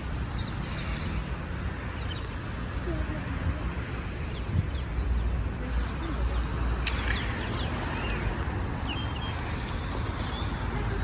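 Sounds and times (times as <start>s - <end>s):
small birds chirping: 0.0s - 11.0s
sharp click: 6.8s - 7.4s.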